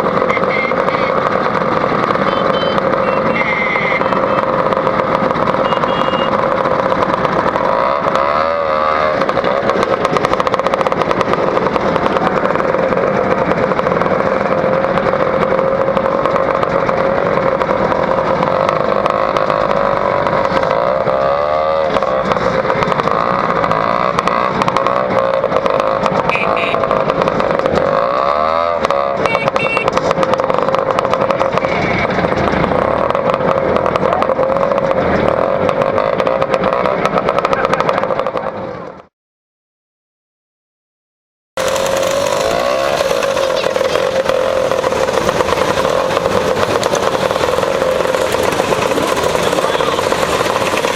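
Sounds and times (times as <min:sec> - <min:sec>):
scooter engine running: 0:00.0 - 0:39.1, 0:41.6 - 0:50.9.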